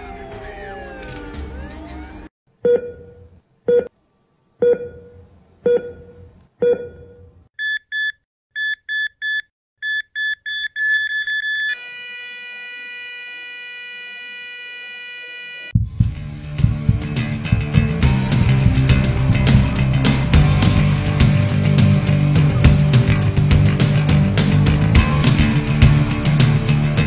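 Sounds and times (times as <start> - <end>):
heart monitor beeps: 2.6 - 3.9, 4.6 - 11.8
continuous flatline tone: 10.6 - 15.8
deep heartbeat thuds: 15.8 - 21.5.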